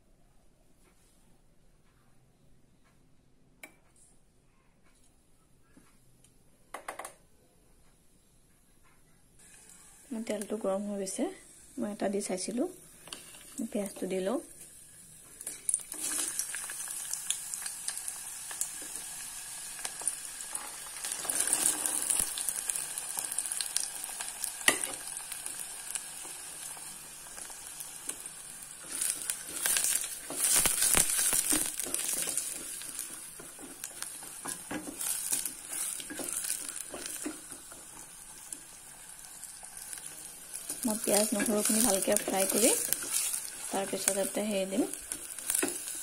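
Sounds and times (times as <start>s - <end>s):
onion and garlic sizzling in oil: 9.4s - 46.0s
wooden spatula stirring: 28.8s - 38.7s, 40.6s - 46.0s.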